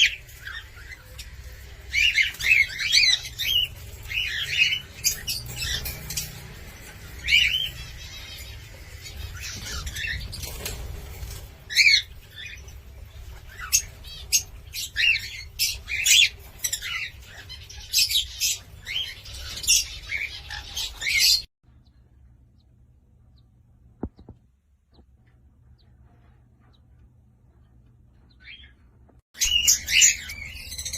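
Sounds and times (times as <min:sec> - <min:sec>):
cockatiel chirping and whistling: 0:29.4 - 0:30.9.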